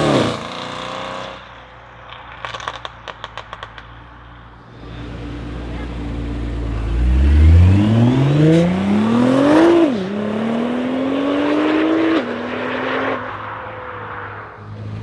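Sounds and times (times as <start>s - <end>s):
car engine accelerating hard: 4.7s - 15.0s.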